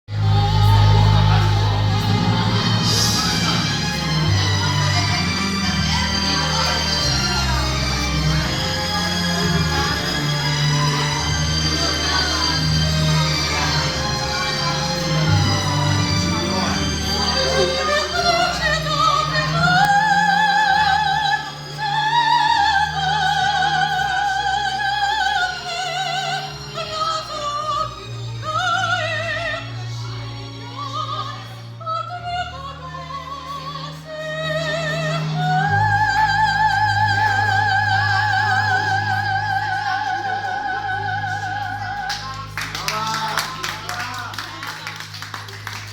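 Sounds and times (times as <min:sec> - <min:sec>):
woman singing opera: 0:00.1 - 0:10.5, 0:17.3 - 0:42.4
low steady accompaniment: 0:00.1 - 0:45.9.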